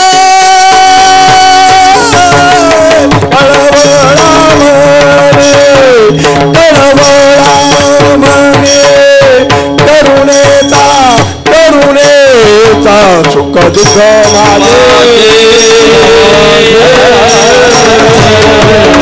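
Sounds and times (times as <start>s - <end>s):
person singing long gliding notes: 0.0s - 10.2s, 14.3s - 19.0s
hand drum: 0.0s - 19.0s.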